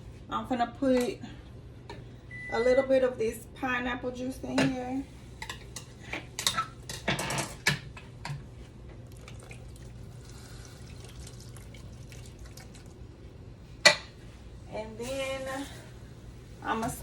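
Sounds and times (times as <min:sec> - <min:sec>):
juice pouring into a pan: 0:09.0 - 0:13.0.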